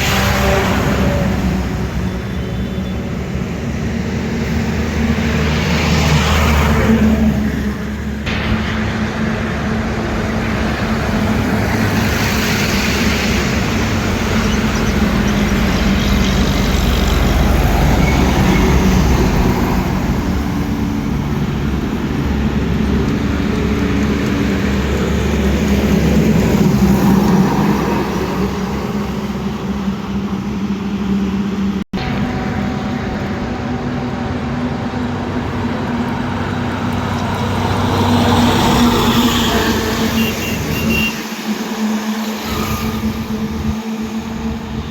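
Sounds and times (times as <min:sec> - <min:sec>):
heavy trucks passing: 0:00.0 - 0:44.9.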